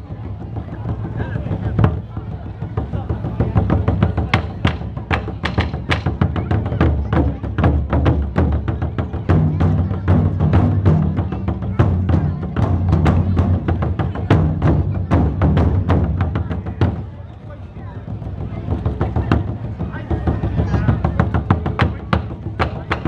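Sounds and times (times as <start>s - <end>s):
deep boom of large drums: 0.2s - 23.0s.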